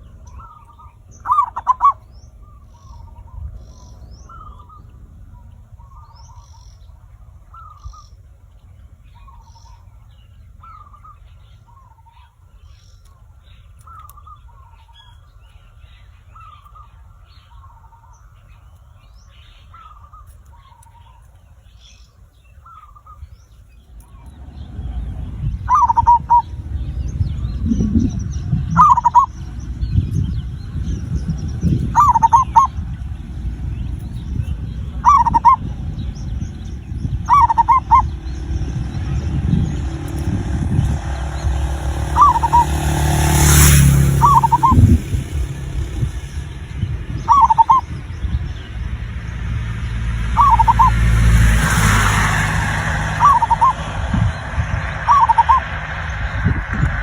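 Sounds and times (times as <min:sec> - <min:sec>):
dove cooing: 0:00.0 - 0:04.8, 0:24.7 - 0:29.8, 0:30.6 - 0:48.0, 0:50.3 - 0:56.0
small birds chirping: 0:00.0 - 0:57.0
loud low rumble: 0:23.2 - 0:57.0.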